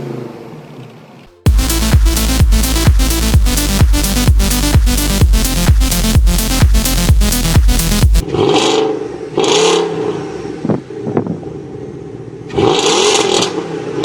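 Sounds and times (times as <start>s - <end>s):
electronic dance music: 1.4s - 8.2s.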